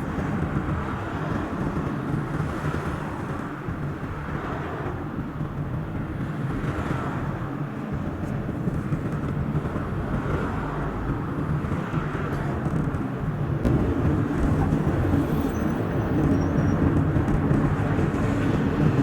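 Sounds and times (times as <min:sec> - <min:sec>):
car engine: 0:13.0 - 0:19.0.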